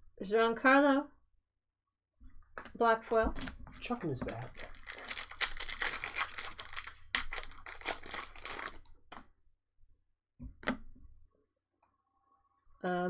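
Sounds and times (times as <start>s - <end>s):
wrapper crinkling and tearing: 3.4s - 9.2s.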